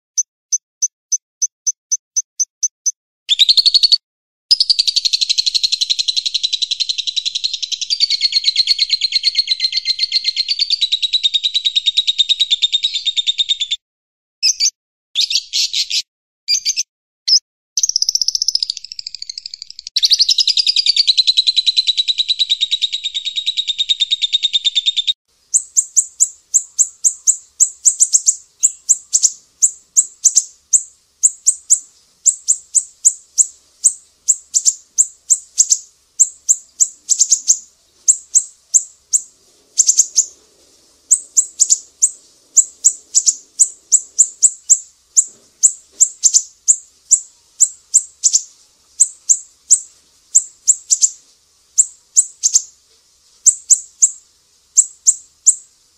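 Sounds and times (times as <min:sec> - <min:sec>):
sharp high bird chirps: 0:00.1 - 0:13.8, 0:14.4 - 0:40.4, 0:41.1 - 0:52.7, 0:53.4 - 0:55.7
dense high bird trill: 0:14.4 - 0:51.2, 0:51.8 - 0:52.7.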